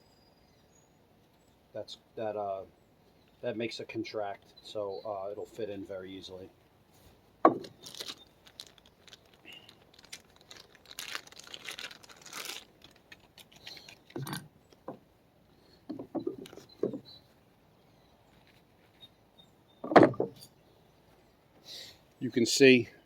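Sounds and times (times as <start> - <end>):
rustling and scraping: 6.9 - 17.5, 18.2 - 21.3.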